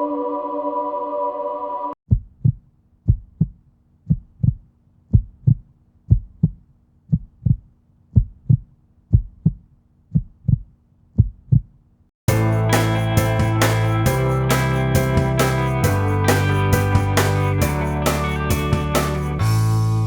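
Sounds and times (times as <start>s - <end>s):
heartbeat thumps: 2.1s - 11.7s.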